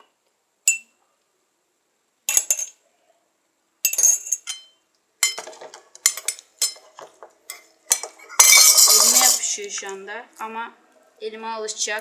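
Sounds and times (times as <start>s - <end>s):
utensil clinking against bowl: 2.3s - 2.8s, 3.9s - 9.5s.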